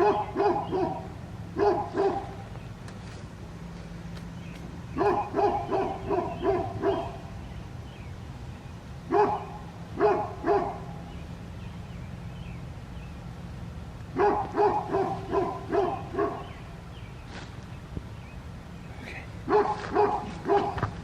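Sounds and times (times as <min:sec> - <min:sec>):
dog barking: 0:00.0 - 0:02.4, 0:05.0 - 0:07.2, 0:09.1 - 0:10.9, 0:14.2 - 0:16.5, 0:19.5 - 0:20.9
steady low rumble: 0:00.0 - 0:21.0.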